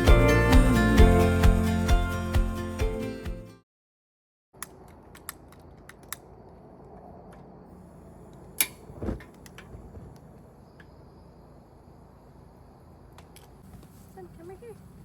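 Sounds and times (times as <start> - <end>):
background music: 0.0 - 3.6
dull thump: 8.9 - 10.2.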